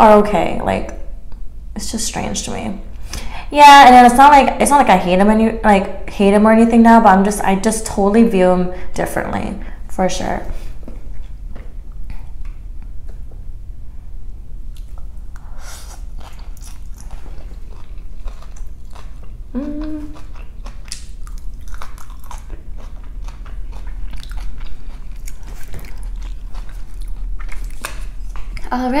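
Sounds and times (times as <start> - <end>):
chewing noodles: 15.8 - 28.7
person humming: 19.5 - 20.2
wet mouth clicks and smacks: 19.8 - 22.2.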